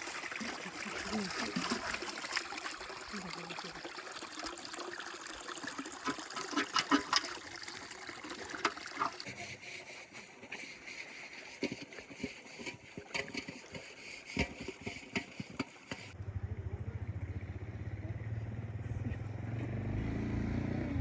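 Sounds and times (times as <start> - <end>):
running water: 0.0 - 16.2.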